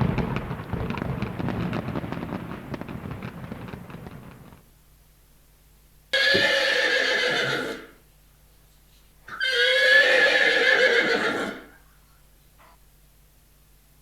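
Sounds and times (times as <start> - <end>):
horse neighing: 6.2 - 8.0, 9.3 - 11.8.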